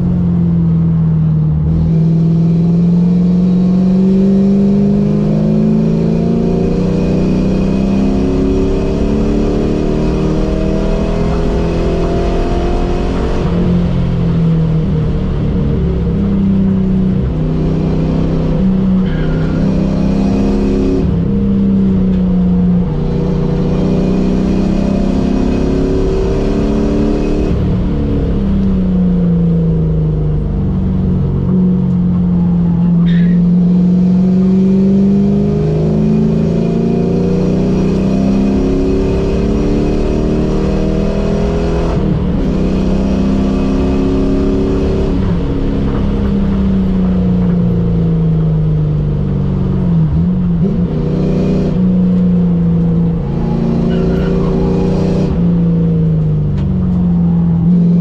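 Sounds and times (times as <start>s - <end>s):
car engine revving: 0.0s - 58.0s
brief high squeal: 19.0s - 19.7s, 33.0s - 33.4s, 53.8s - 54.5s.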